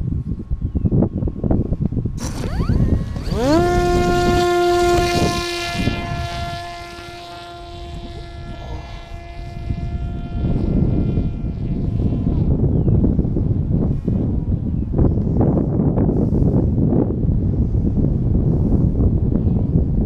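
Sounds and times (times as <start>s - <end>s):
wind buffeting microphone: 0.0s - 20.0s
drone propeller whine: 2.2s - 14.6s.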